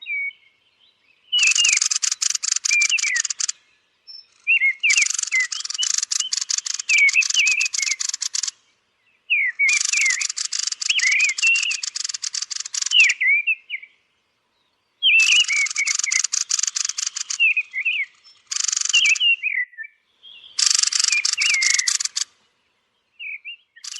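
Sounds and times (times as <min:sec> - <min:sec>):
thrushes chirping: 0:00.0 - 0:23.9
hissing crackle: 0:01.4 - 0:03.5, 0:04.9 - 0:08.6, 0:09.7 - 0:13.1, 0:15.2 - 0:17.6, 0:20.6 - 0:22.3.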